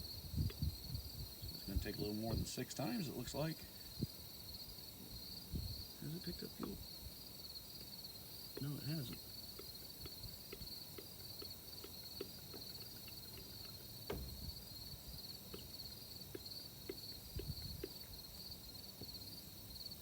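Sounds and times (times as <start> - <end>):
insects chirping: 0.0 - 20.0
loud knocks: 14.1 - 14.5.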